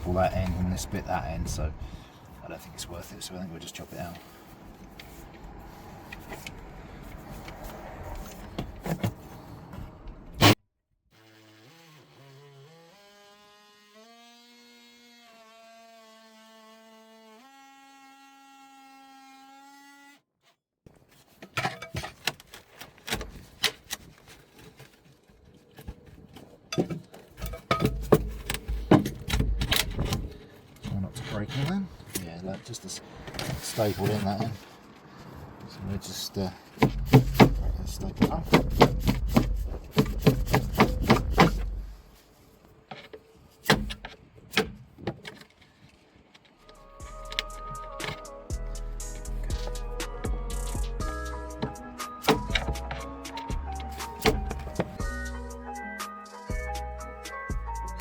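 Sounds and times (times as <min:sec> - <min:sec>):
small power tool buzzing: 0:11.1 - 0:20.3.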